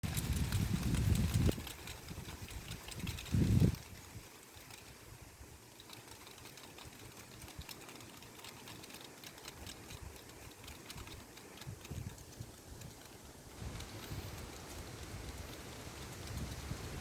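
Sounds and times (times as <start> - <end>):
wind rumble on microphone: 0.0 - 5.7, 9.6 - 17.0
dry leaves rattling: 0.0 - 17.0.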